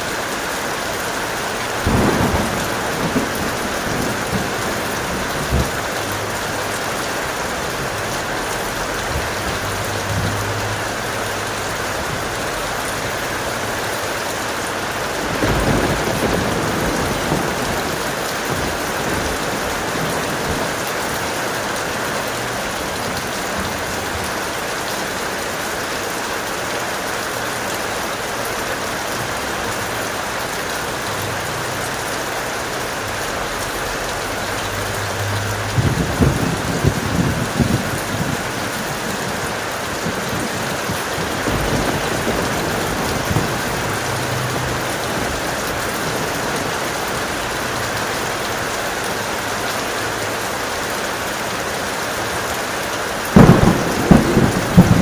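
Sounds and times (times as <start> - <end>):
heavy rain falling: 0.0 - 55.0
thunder rumbling: 1.5 - 24.5, 34.8 - 48.8, 53.3 - 55.0.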